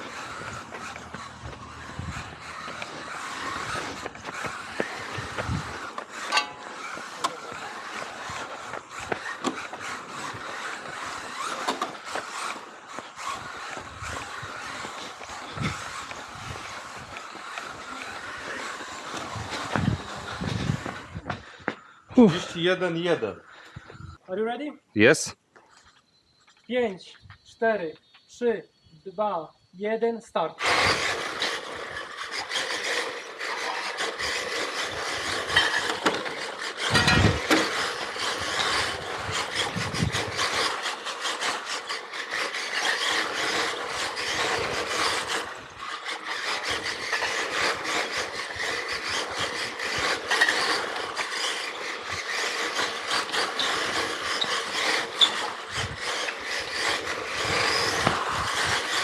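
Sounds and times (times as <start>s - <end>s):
tyres scrubbing on pavement: 0.0s - 21.6s, 30.6s - 59.0s
electric motor and drivetrain whir: 0.0s - 24.2s, 30.6s - 59.0s.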